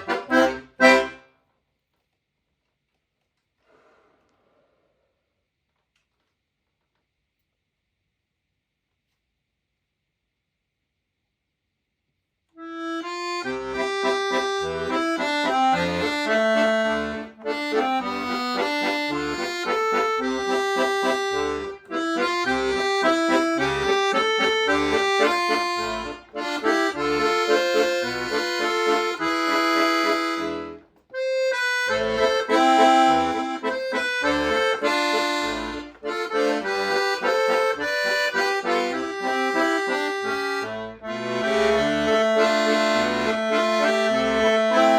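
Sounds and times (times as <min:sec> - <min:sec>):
accordion melody: 0:00.0 - 0:01.4, 0:12.6 - 0:44.9.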